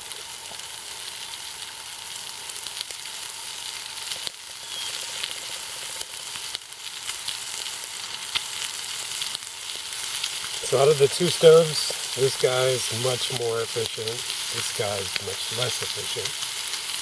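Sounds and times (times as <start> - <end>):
small pops and crackles: 0.0 - 10.7
meat sizzling in a pan: 0.0 - 17.0.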